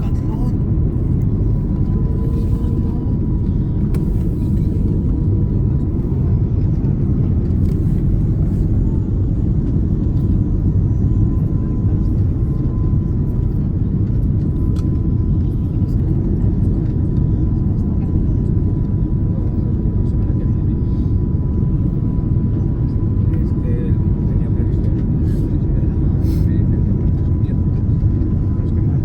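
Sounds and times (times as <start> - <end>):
airliner cabin engine rumble: 0.0 - 29.0.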